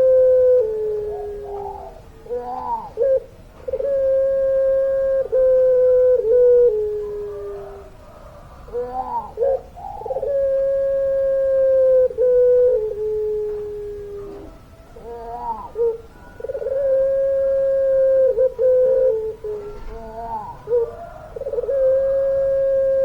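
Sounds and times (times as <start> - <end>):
dove cooing: 0.0 - 23.0.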